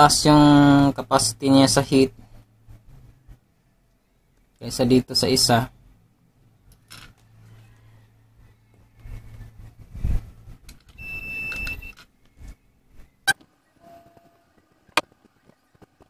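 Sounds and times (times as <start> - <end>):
small parts rustling: 6.6 - 7.8
brief high tone: 13.8 - 14.6.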